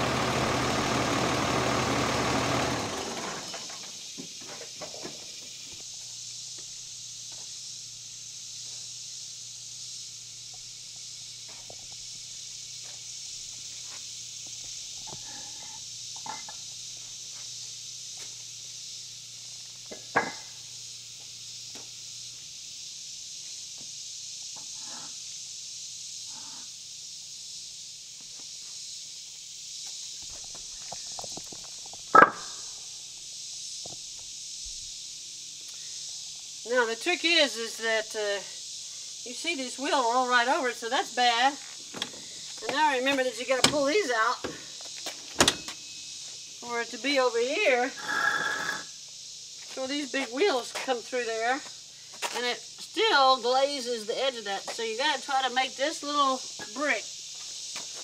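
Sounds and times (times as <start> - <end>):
truck engine running: 0.0 - 3.7
steady high hiss: 0.0 - 58.0.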